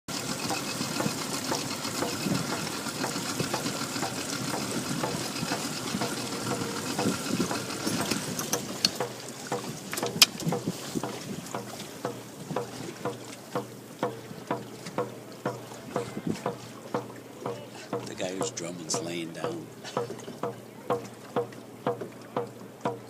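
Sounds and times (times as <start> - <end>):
water sloshing and splashing: 0.1 - 23.0.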